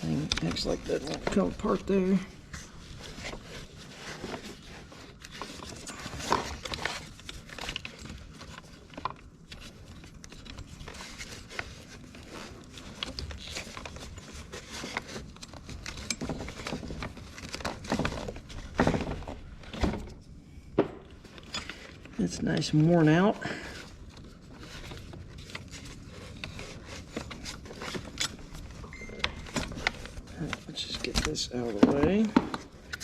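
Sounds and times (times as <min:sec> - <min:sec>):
knocks and clunks of hand work: 0:15.9 - 0:20.2, 0:20.8 - 0:21.8, 0:31.0 - 0:33.0.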